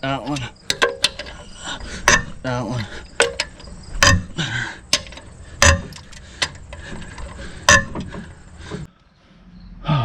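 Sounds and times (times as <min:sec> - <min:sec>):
ratchet wrench clicking: 0:00.3 - 0:02.4, 0:03.0 - 0:08.4.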